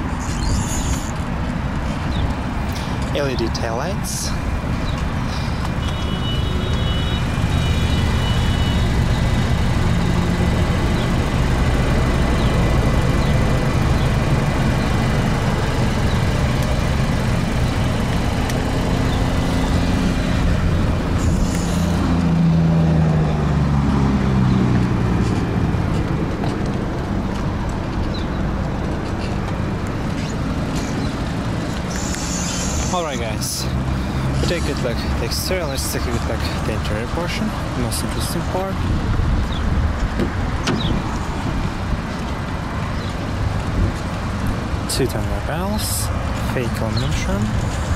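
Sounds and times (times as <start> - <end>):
vehicle engines rumbling: 0.0 - 47.9.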